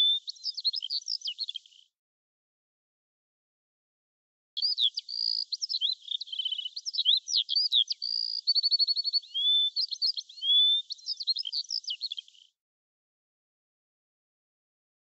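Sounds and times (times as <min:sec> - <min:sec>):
songbird singing trills: 0:00.0 - 0:01.8, 0:04.6 - 0:12.5.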